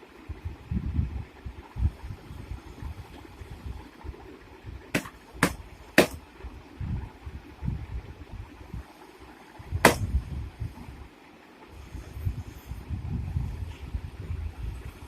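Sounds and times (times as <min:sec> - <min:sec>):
sharp knocks: 0:04.9 - 0:06.2, 0:09.8 - 0:10.1.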